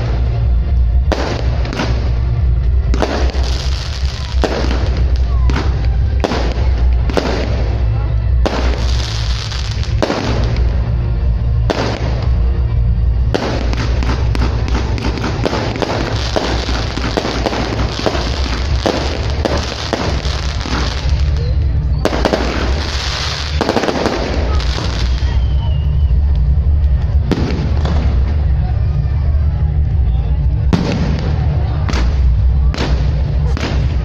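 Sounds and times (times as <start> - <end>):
fireworks bangs and crackles: 0.0 - 34.0
music with heavy bass: 0.0 - 34.0.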